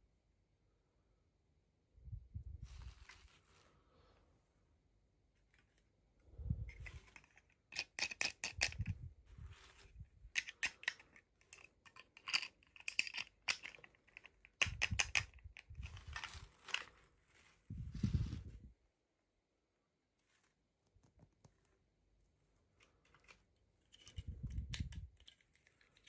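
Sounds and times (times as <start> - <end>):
toy packaging crackling: 9.8 - 17.7.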